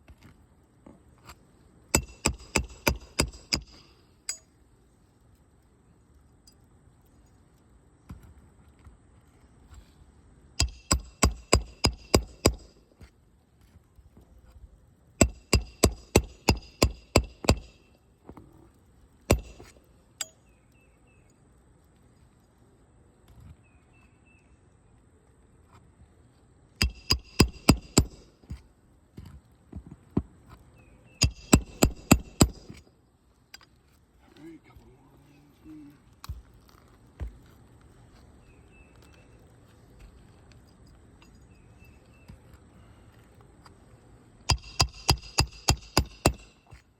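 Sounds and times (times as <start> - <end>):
hammer driving roofing nails: 2.0 - 3.9, 10.6 - 12.8, 15.2 - 17.8, 19.3 - 19.8, 26.8 - 28.6, 31.2 - 32.9, 44.5 - 46.8.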